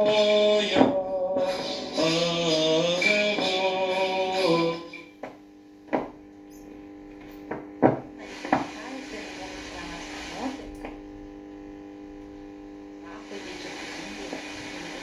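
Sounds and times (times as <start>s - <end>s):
male choir singing over radio: 0.0s - 5.4s
steady radio hum: 0.0s - 15.0s.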